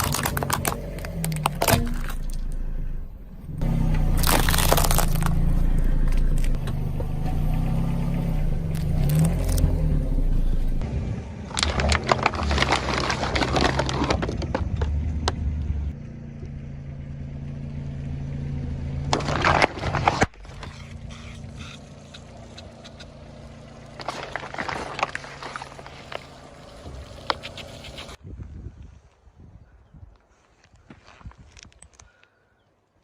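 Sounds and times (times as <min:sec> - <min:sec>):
brittle things crunching and cracking: 0:00.0 - 0:02.6, 0:03.6 - 0:07.7, 0:08.7 - 0:09.8, 0:11.5 - 0:15.0, 0:19.2 - 0:28.2
steady low hum: 0:00.2 - 0:09.0.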